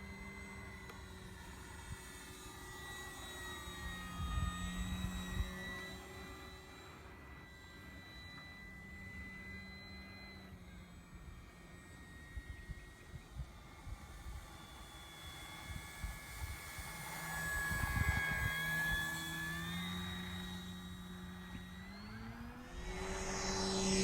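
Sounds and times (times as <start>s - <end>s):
electric motor and propeller whining: 0.0s - 24.0s
low rumble burst: 22.3s - 24.0s.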